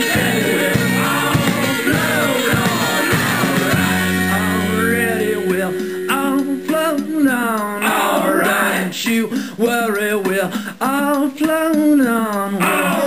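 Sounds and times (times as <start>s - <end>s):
rock band playing: 0.0s - 7.8s
person singing: 0.0s - 13.0s.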